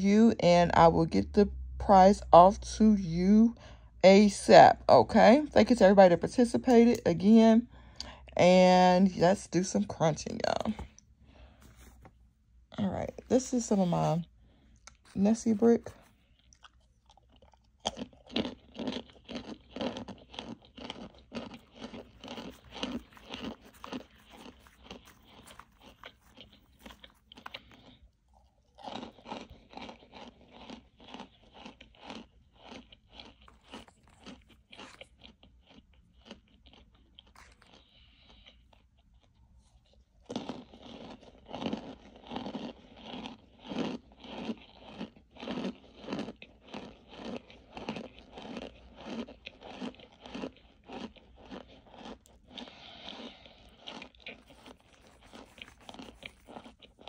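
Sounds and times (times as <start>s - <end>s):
crunching and chewing: 10.2s - 57.0s.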